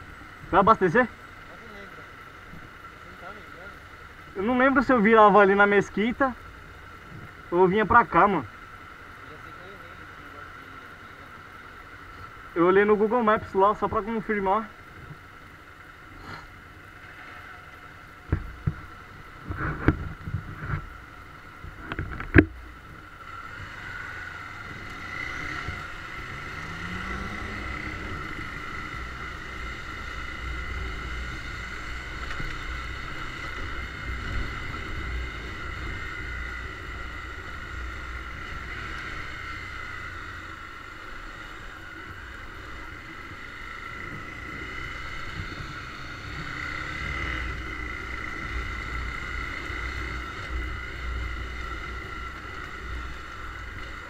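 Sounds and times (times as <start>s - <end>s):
motorcycle engine pulling away: 23.0s - 54.0s.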